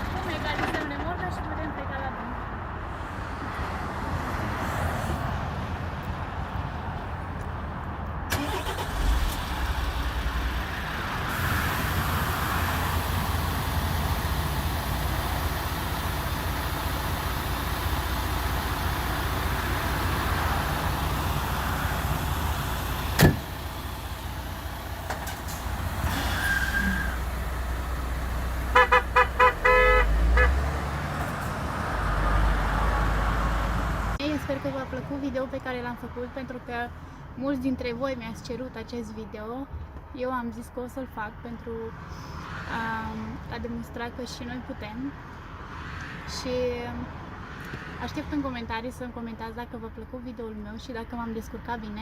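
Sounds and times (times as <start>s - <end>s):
truck engine running: 8.3s - 34.2s
short horn toots: 28.7s - 30.6s.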